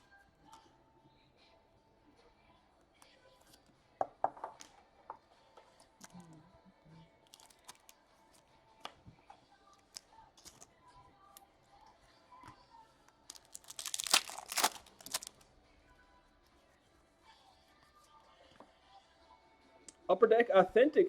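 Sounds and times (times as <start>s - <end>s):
card handling clicks and rustles: 13.3s - 15.4s
foil pack tearing open: 13.3s - 15.4s.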